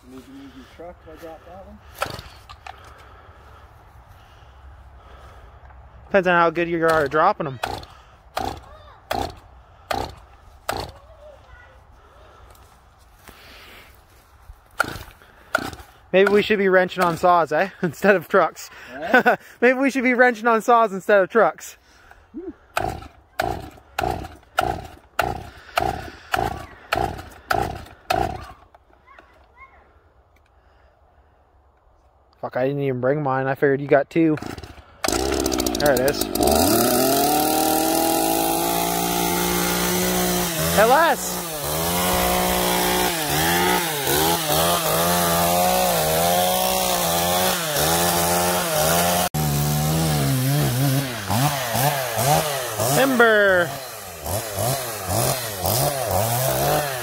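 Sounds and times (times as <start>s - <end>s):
chainsaw starter cord pulls: 6.8s - 11.0s, 14.8s - 17.2s, 22.7s - 29.3s, 34.4s - 57.0s.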